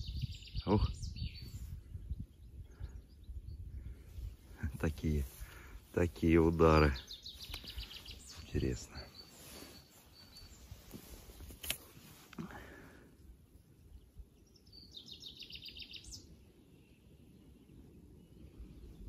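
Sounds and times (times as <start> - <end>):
songbird trill: 0.0 - 19.0
sharp click: 11.6 - 12.4.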